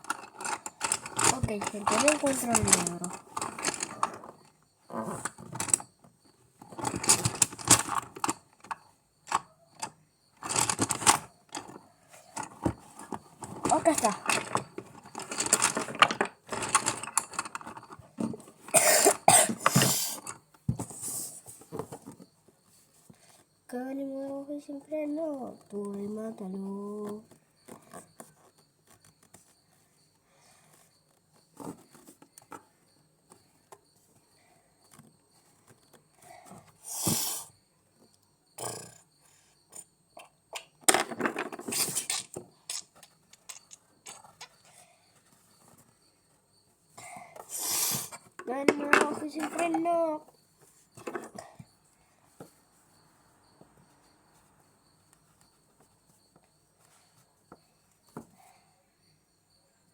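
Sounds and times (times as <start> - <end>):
rattling clatter: 0.0 - 4.4
small hard objects clicking: 0.0 - 5.9, 6.7 - 11.8, 12.4 - 18.0, 40.5 - 44.7
person coughing: 18.7 - 20.0.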